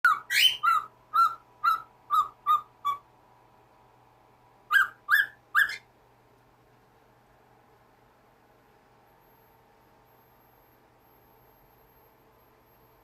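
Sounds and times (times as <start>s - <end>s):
parrot whistled calls: 0.1s - 3.1s, 4.7s - 5.9s.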